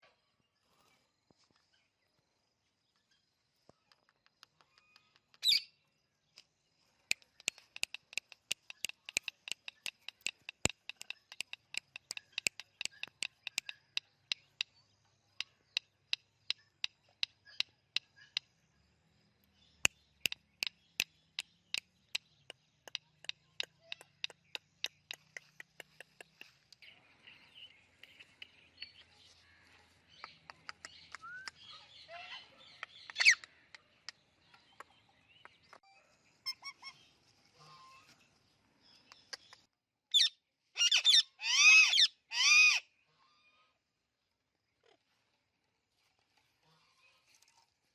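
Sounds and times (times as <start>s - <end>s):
parakeet clicking: 7.1s - 14.7s, 19.9s - 26.6s.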